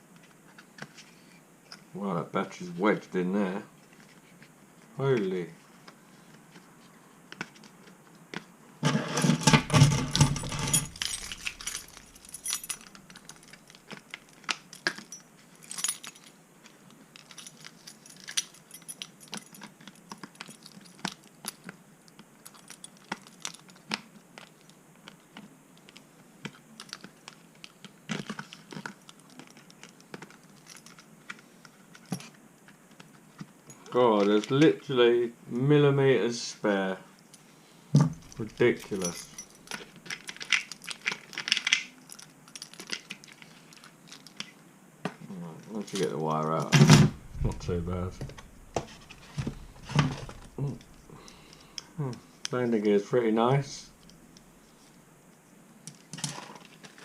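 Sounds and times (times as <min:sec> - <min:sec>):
scrabbling clattering handling: 0:08.9 - 0:16.3, 0:46.9 - 0:51.7.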